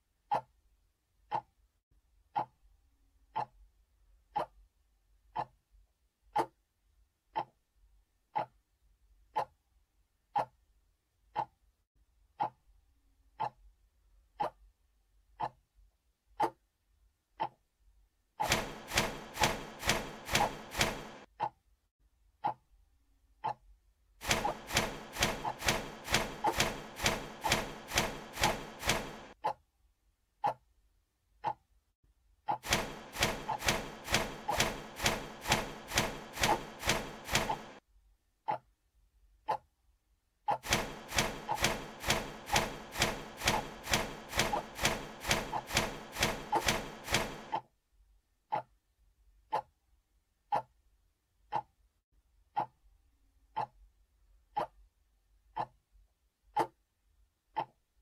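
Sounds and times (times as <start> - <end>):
rapid mechanical clacking: 18.4 - 21.3, 24.2 - 29.4, 32.6 - 37.8, 40.5 - 47.6
sharp ticks: 24.2 - 29.4, 32.5 - 37.8, 40.5 - 47.6
steady hum: 24.2 - 29.4, 32.6 - 37.8, 40.7 - 47.5.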